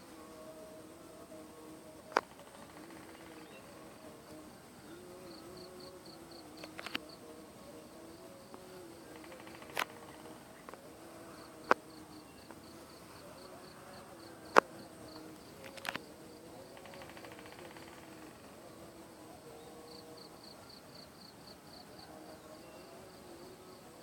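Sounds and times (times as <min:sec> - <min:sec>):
high insect chirping: 0:02.1 - 0:23.8.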